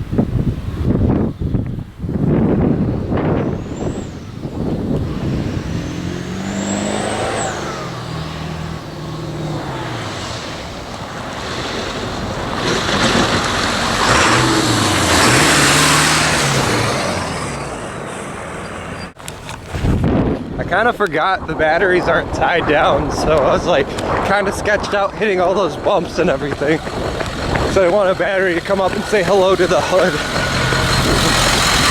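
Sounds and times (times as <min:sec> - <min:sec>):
diesel truck engine pulling: 0:00.1 - 0:31.9
loud rushing noise: 0:02.5 - 0:18.9.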